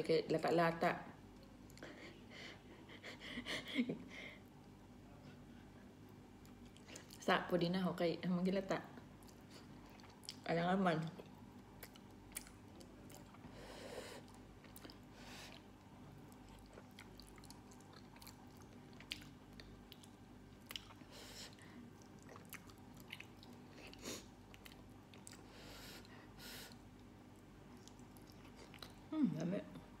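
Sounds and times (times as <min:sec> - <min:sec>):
chewing mouth sounds: 0:14.3 - 0:21.1, 0:21.9 - 0:25.5, 0:26.7 - 0:29.1.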